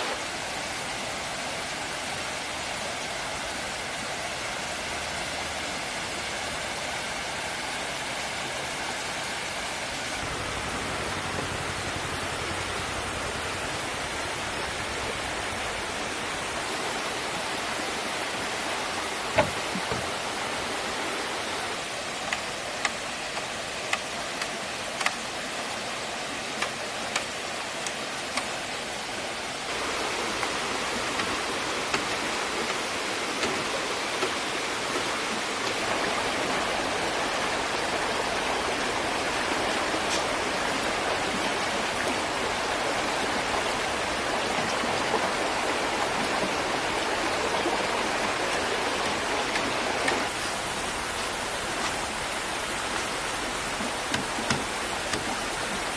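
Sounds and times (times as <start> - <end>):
stream flowing: 0.0 - 55.9
sharp knocks: 19.3 - 20.1, 54.1 - 55.3.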